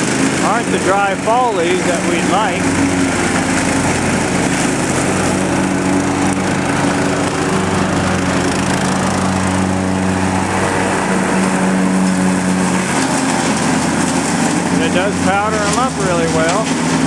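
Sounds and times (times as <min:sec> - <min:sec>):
lawn tractor engine running: 0:00.0 - 0:17.0
mower blade shredding wet leaves: 0:00.0 - 0:17.0.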